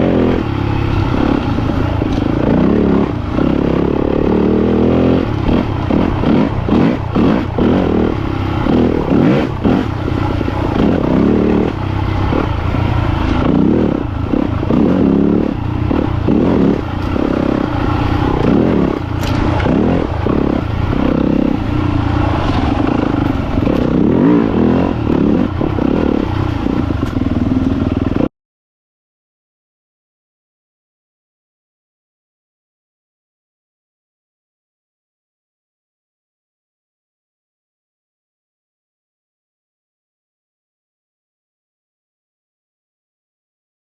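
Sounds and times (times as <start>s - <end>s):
dirt bike engine revving: 0.0s - 28.3s.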